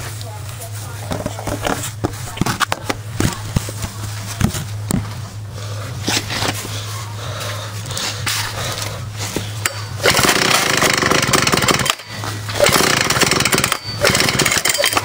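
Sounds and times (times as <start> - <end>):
recoil starter cord pull: 9.6 - 15.0.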